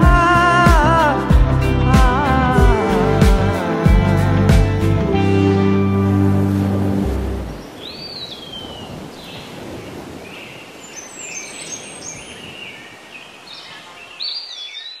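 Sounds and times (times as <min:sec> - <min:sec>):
outdoor background hiss: 0:00.0 - 0:15.0
birds chirping and whistling: 0:10.3 - 0:15.0.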